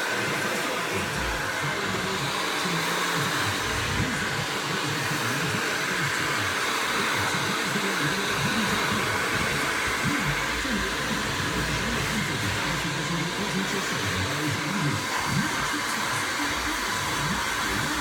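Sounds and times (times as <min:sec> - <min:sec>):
hair dryer running: 0:00.0 - 0:18.0.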